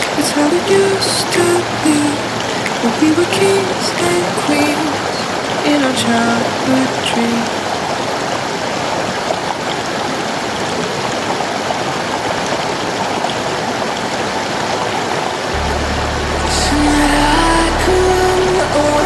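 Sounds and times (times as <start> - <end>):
stream rushing over rocks: 0.0 - 19.0
low bass music: 15.6 - 19.0.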